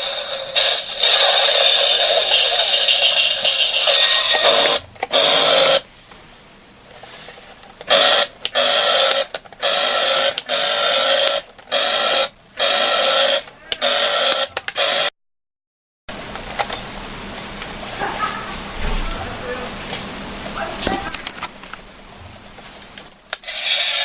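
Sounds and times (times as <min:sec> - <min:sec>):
toy motors and gears whirring: 0:00.0 - 0:05.8, 0:07.2 - 0:15.1, 0:23.3 - 0:24.0.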